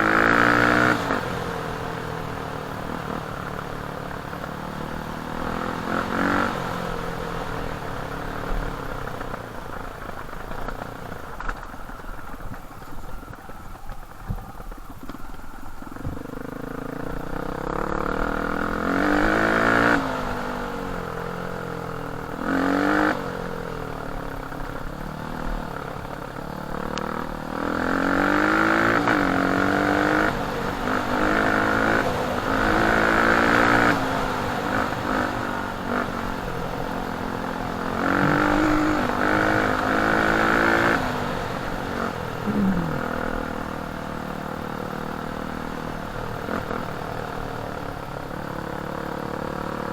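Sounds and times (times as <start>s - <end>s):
dirt bike engine revving: 0.0s - 1.8s, 5.0s - 7.7s, 16.4s - 21.5s, 26.8s - 47.4s.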